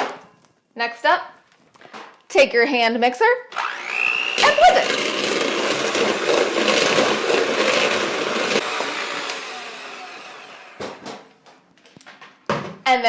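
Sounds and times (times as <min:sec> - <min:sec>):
electric hand mixer beating cream: 0:03.5 - 0:11.0.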